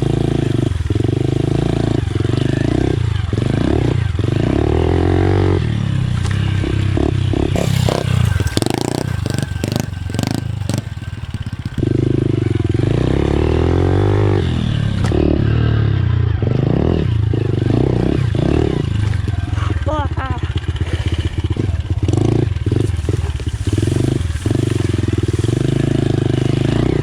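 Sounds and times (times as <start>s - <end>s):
pit bike engine revving: 0.0s - 19.6s
sharp clicks and clatter: 7.6s - 11.8s.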